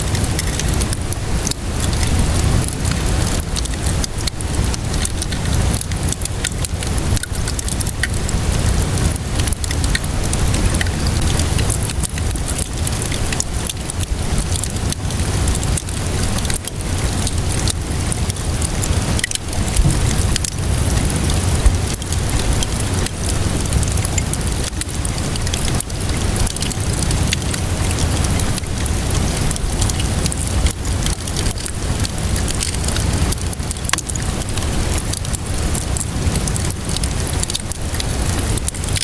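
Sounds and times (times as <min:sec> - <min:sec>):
rainfall hiss: 0:00.0 - 0:39.0
wood fire crackling: 0:00.0 - 0:39.0
deep rumble: 0:18.8 - 0:24.0.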